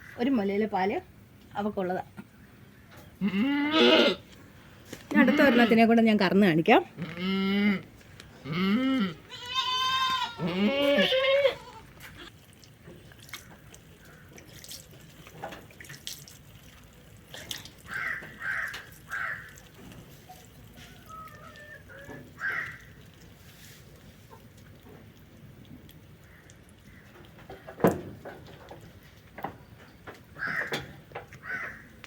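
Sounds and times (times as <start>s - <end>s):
goat bleating: 3.2s - 4.2s, 5.2s - 5.8s, 7.0s - 12.3s
milk squirting: 12.0s - 27.4s.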